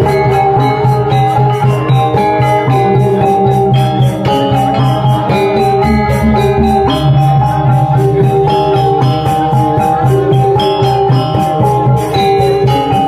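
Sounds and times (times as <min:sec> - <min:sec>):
metallophone tones ringing: 0:00.0 - 0:13.0
deep gong tones: 0:05.8 - 0:08.8.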